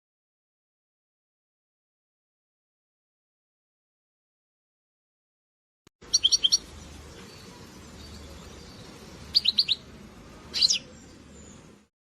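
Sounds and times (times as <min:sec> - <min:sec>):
goldfinch chirping: 0:06.1 - 0:09.9, 0:10.5 - 0:11.7.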